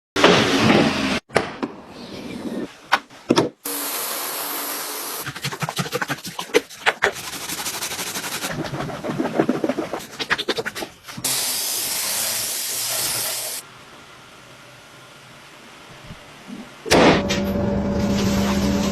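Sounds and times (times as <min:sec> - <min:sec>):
spray hiss: 0:03.7 - 0:05.2, 0:11.2 - 0:13.6.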